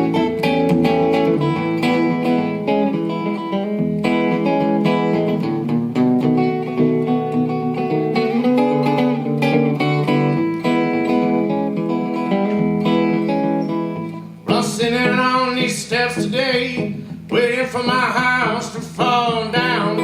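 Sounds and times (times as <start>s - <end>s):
solo blues guitar: 0.0s - 20.0s
person singing: 14.4s - 20.0s.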